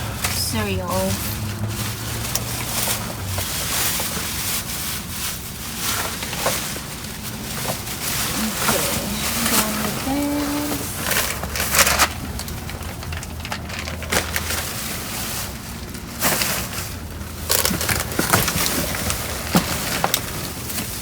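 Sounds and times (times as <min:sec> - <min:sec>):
low steady hum: 0:00.0 - 0:21.0
trash bags rustling and crunching: 0:00.0 - 0:21.0.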